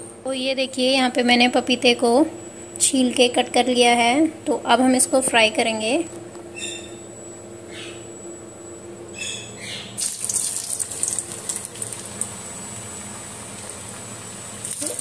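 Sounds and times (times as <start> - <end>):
food frying in hot oil: 10.0 - 15.0.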